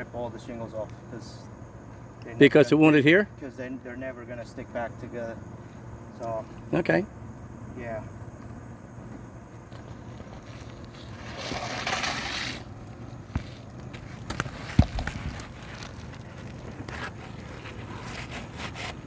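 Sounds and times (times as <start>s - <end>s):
roof shingles scraping and crackling: 9.7s - 19.0s.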